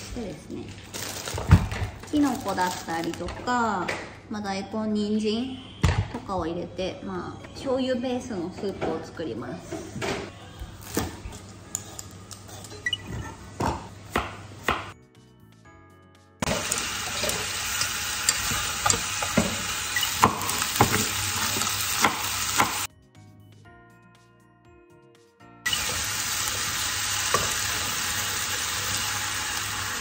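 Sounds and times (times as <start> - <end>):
soft background music: 0.0 - 28.4
chicken sizzling in a pot: 16.4 - 22.9, 25.6 - 30.0.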